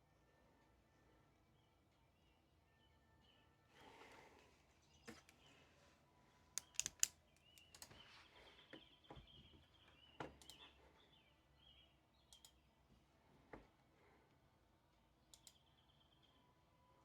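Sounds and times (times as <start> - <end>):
faint clicks of small objects: 6.6 - 7.9.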